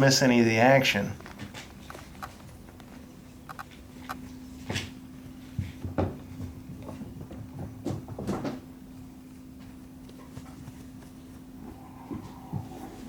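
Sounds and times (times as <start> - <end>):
steady low hum: 0.0 - 13.0
kittens knocking and thumping: 5.5 - 8.7.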